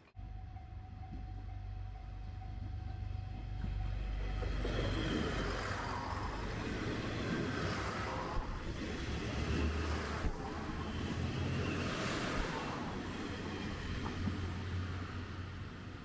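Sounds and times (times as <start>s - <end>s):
diesel train rumble: 0.0s - 16.0s.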